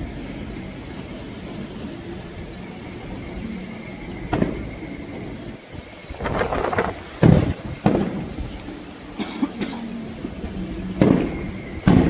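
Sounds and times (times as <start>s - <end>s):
low fireworks rumble: 0.0s - 12.0s
sharp firework bang: 11.0s - 12.0s.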